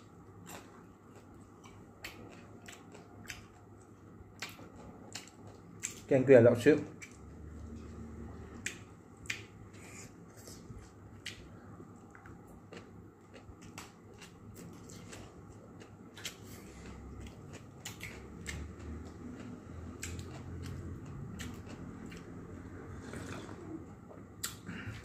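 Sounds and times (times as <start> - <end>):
chewing clicks smacks and crunches: 0.4 - 6.1, 6.9 - 7.3, 8.6 - 9.6, 12.1 - 22.4.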